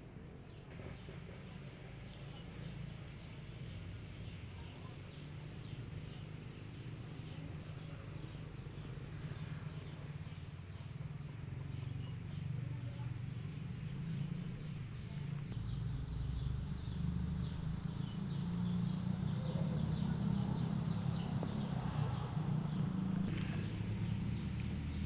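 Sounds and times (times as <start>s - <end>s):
small birds chirping: 0.0s - 25.0s
steady low rumble: 7.1s - 25.0s.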